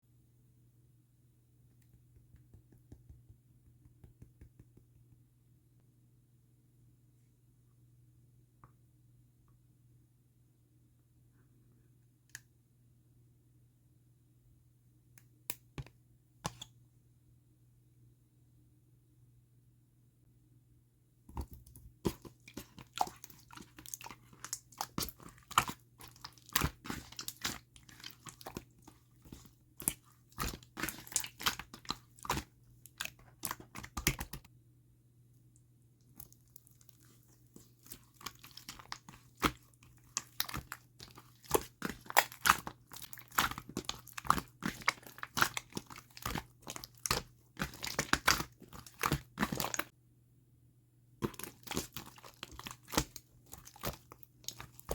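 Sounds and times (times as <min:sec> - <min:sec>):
slime squished by hand: 0:21.3 - 0:34.5, 0:36.1 - 0:49.9, 0:51.2 - 0:54.9.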